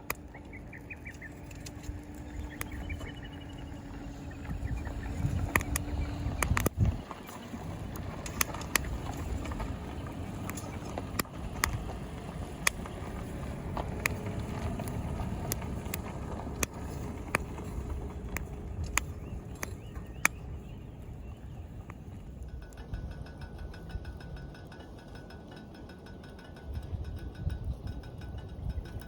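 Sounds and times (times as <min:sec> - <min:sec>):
fire crackling and popping: 0:00.0 - 0:22.5.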